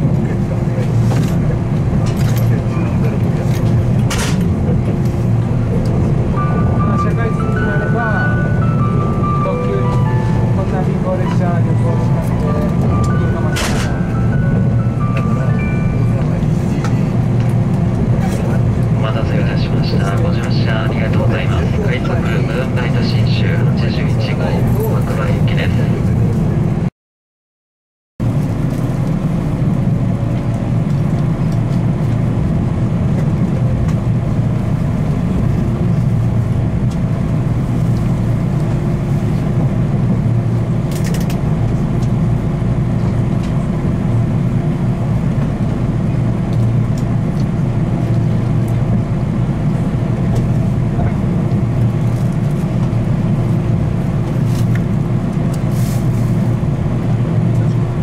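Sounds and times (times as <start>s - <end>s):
train wheels rumbling: 0.0s - 26.8s.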